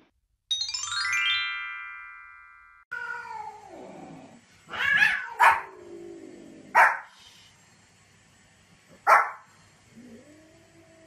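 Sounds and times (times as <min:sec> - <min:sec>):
cat yowling: 0:04.7 - 0:05.8.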